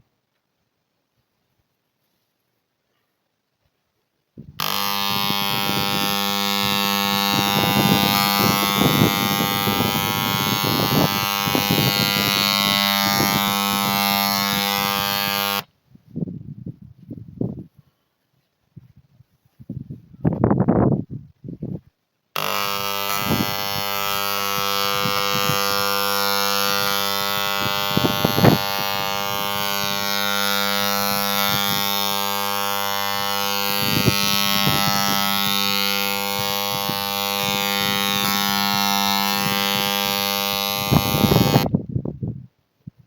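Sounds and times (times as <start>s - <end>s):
mechanical buzzing hum: 4.4s - 15.7s, 22.4s - 41.9s.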